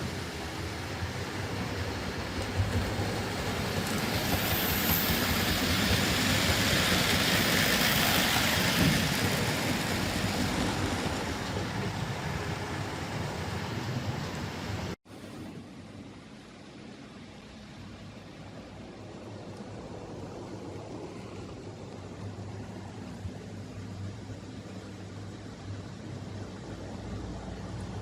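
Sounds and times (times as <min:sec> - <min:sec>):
model train rattling on track: 0:00.0 - 0:14.2.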